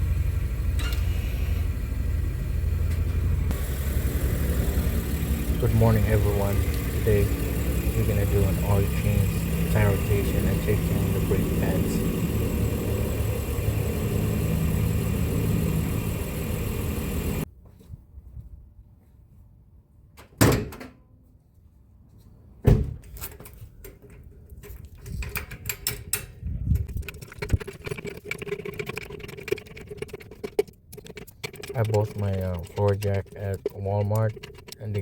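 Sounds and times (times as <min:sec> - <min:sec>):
car engine idling: 0:00.0 - 0:17.4.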